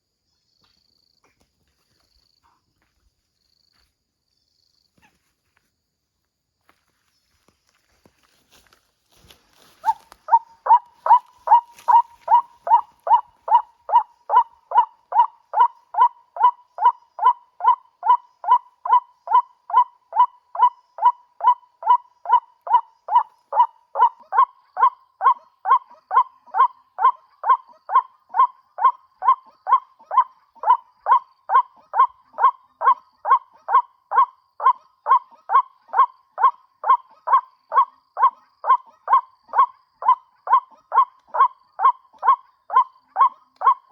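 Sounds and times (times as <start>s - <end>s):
bird call repeated: 9.7s - 43.9s.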